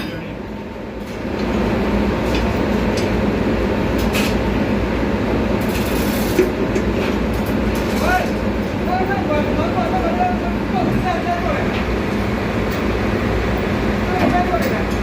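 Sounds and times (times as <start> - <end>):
machinery rumble: 0.0 - 15.0.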